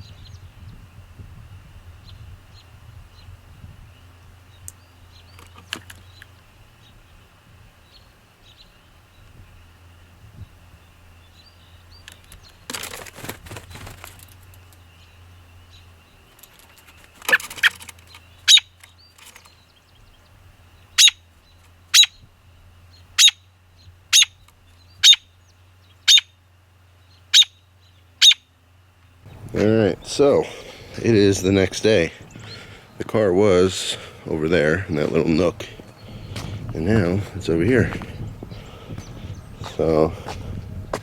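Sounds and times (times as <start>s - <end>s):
bird call notes: 14.4s - 40.2s.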